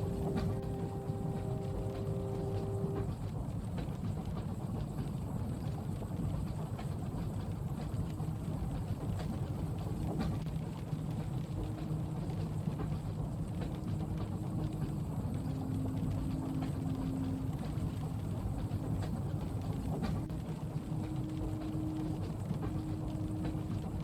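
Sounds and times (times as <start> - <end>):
rain ticking: 0.0 - 3.1, 8.0 - 24.0
faint hum: 0.0 - 3.2, 9.2 - 24.0
train rumbling in motion: 0.0 - 24.0.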